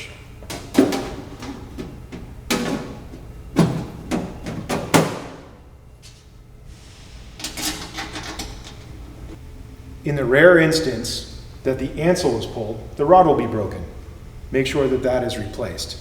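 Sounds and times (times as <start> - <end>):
metal panel rattling and scraping: 0.4 - 5.5.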